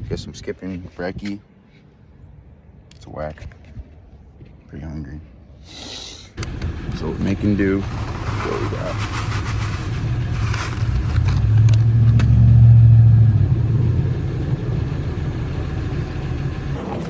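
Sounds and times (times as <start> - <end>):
vehicle engine rumble: 6.4 - 17.0.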